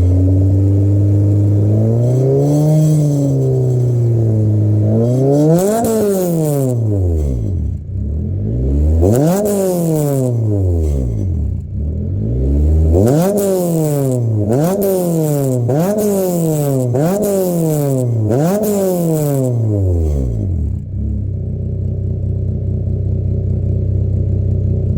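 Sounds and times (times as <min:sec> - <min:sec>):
car engine idling: 0:00.0 - 0:13.0, 0:20.3 - 0:24.9
car engine revving: 0:00.0 - 0:24.9.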